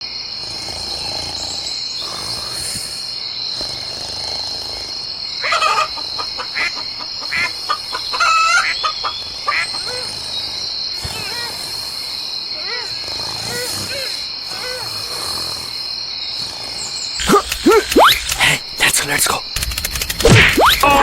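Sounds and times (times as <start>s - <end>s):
chickens clucking: 5.4s - 10.0s.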